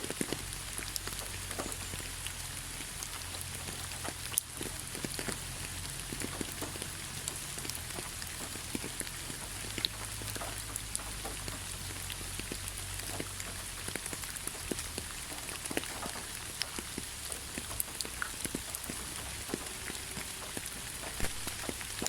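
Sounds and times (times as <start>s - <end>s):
heavy rain hissing: 18.3s - 22.0s.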